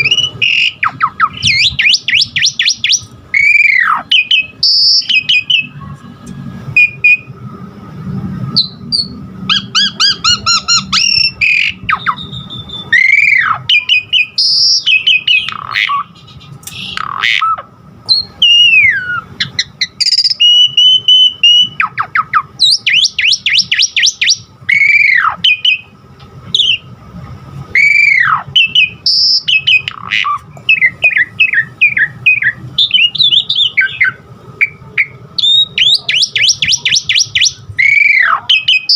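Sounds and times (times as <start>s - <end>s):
starling singing varied song: 8.6s - 16.2s, 27.8s - 38.9s.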